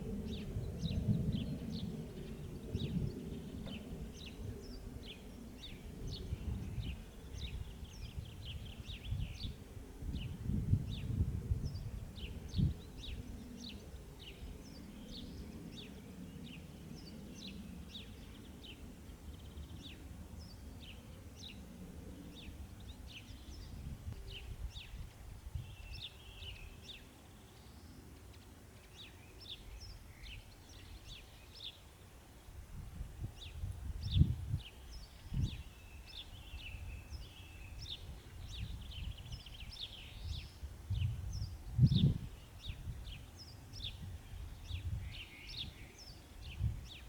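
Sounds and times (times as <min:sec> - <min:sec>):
small birds chirping: 0:33.4 - 0:47.0.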